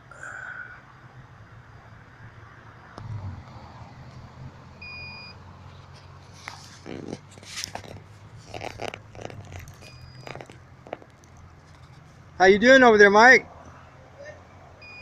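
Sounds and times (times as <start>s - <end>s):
small clicks and rustles: 5.7s - 12.2s.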